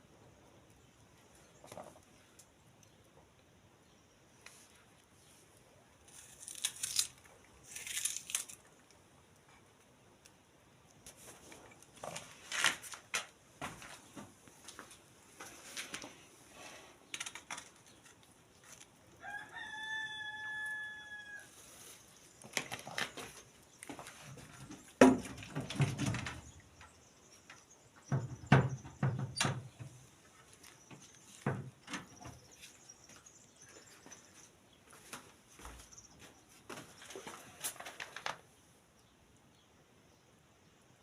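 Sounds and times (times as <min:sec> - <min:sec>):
rooster crowing: 0:19.2 - 0:21.6
scattered knocks and thumps: 0:28.0 - 0:29.9.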